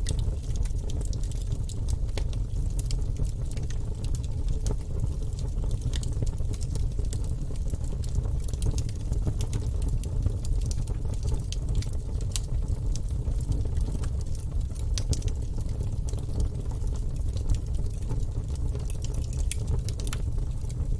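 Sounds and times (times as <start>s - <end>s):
logs crackling and popping: 0.0s - 20.9s
wood fire rumbling: 0.0s - 20.9s.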